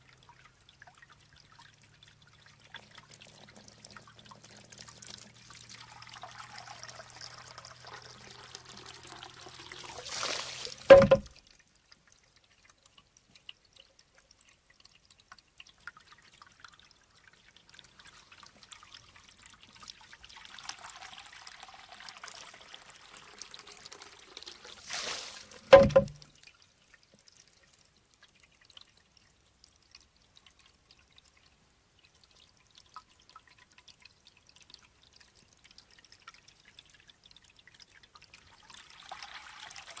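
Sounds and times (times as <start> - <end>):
water trickling and pouring: 0.0 - 40.0
bamboo tube knocking on stone: 10.9 - 11.3, 25.7 - 26.2.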